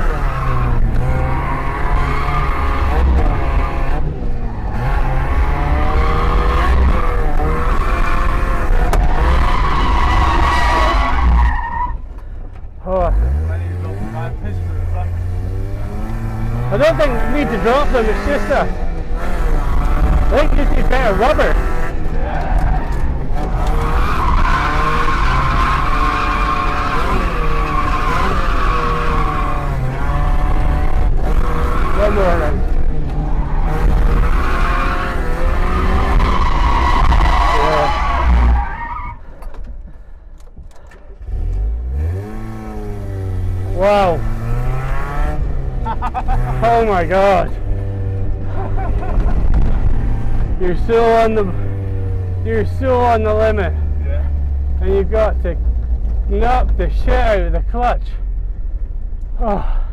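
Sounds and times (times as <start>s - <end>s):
car engine at high revs: 0.0s - 59.6s
tyres squealing: 33.2s - 39.3s.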